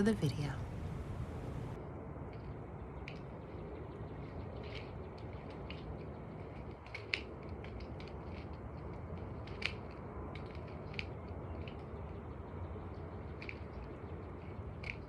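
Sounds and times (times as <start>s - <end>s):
low background rumble: 0.0s - 1.8s.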